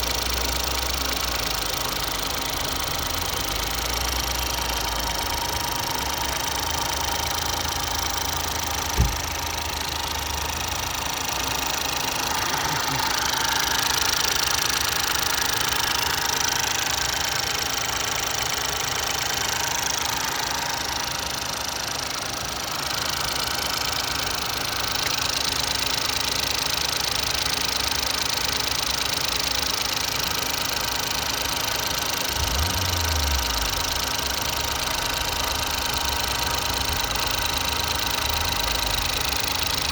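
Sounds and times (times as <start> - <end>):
car engine idling: 0.0 - 39.9
sharp engine knock: 2.0 - 17.7.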